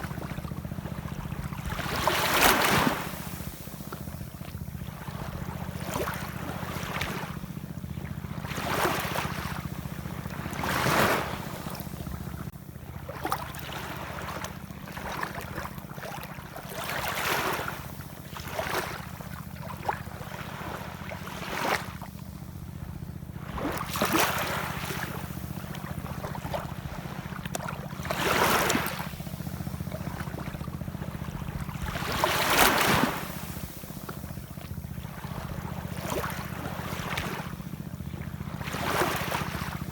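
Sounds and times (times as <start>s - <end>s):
low rumble of wind and surf: 0.0s - 39.9s
ocean waves splashing: 1.0s - 4.0s, 8.4s - 12.4s, 23.4s - 37.6s, 38.6s - 39.9s.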